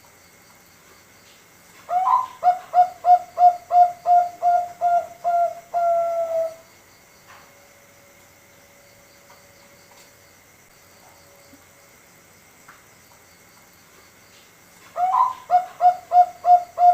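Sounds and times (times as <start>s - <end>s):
zebra dove cooing: 1.9s - 6.6s, 14.9s - 16.9s.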